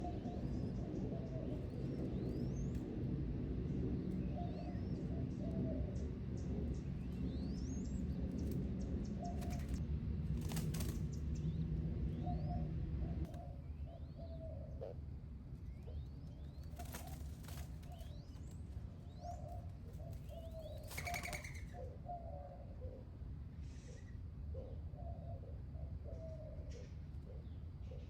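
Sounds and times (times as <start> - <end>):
birds chirping: 0.0 - 9.8, 10.6 - 23.0
low rumble: 0.0 - 13.4.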